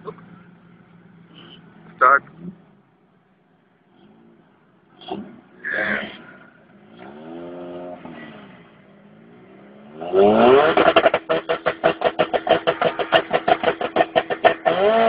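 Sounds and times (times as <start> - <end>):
car engines revving: 0.0 - 15.0
engine bouncing off rev limiter: 3.8 - 15.0.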